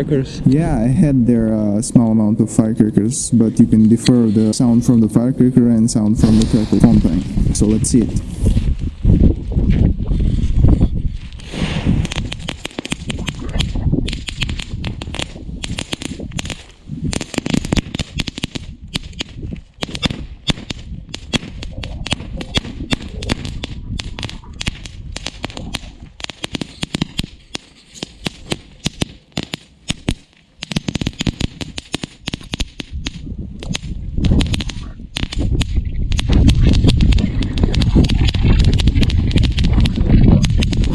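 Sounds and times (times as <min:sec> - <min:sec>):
low rumble: 0:00.0 - 0:12.4
firework fountain crackling: 0:06.2 - 0:08.6, 0:12.0 - 0:40.9.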